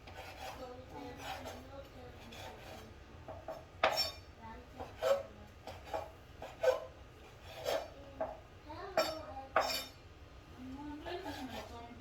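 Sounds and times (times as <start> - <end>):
utensils scraping and clinking: 0.0 - 8.0, 8.9 - 10.0.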